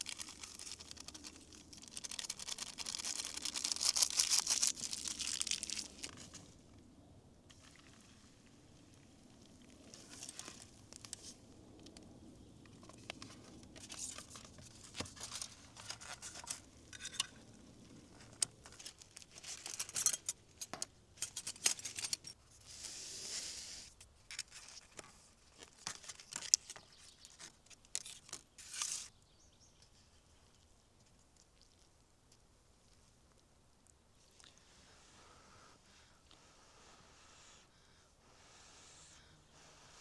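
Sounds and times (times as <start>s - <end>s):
crinkling and tearing handling noises: 0.0s - 6.6s, 9.3s - 12.1s, 12.7s - 22.4s, 24.2s - 29.1s.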